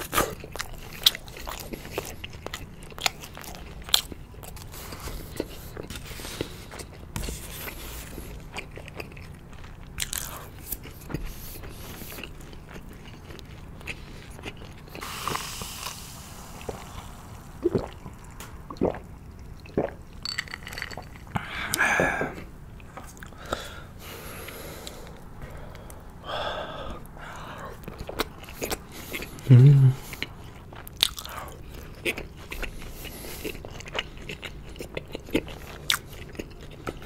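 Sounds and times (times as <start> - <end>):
person chewing with crunches: 0.0 - 37.0
wet mouth sounds: 13.9 - 22.5, 27.9 - 30.4
person swallowing a drink: 17.6 - 22.5.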